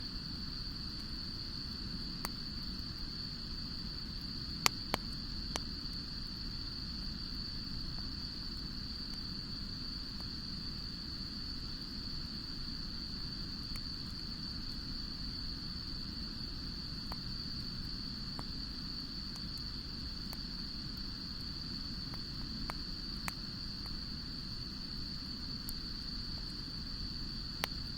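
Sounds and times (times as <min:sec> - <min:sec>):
fire crackles and pops: 0:00.2 - 0:27.9
campfire burning rush: 0:16.1 - 0:27.9.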